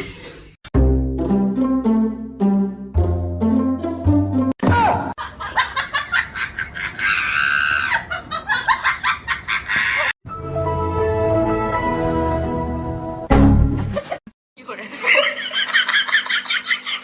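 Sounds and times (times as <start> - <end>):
background music: 0.8 - 4.6, 10.3 - 13.9.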